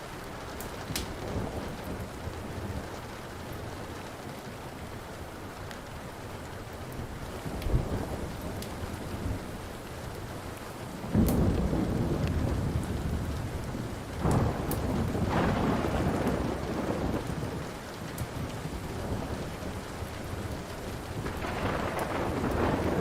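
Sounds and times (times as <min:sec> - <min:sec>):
steady rain: 0:00.0 - 0:23.0
crackling wood fire pops: 0:00.6 - 0:01.3, 0:11.2 - 0:12.4
rolling thunder: 0:11.0 - 0:17.7, 0:18.4 - 0:23.0.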